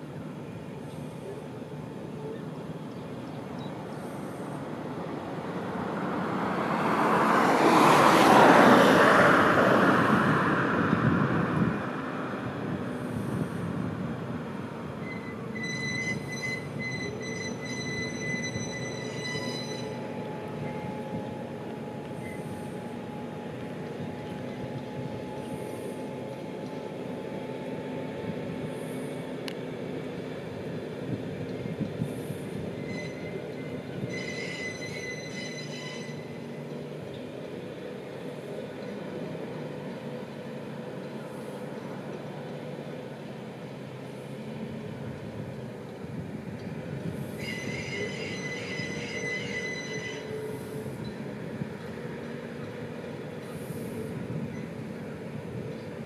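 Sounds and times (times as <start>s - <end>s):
broad rush of noise: 0.0s - 56.0s
train coaches rolling slowly: 0.0s - 56.0s
high thin wheel squeal: 15.0s - 23.0s, 32.7s - 37.2s, 47.2s - 51.3s.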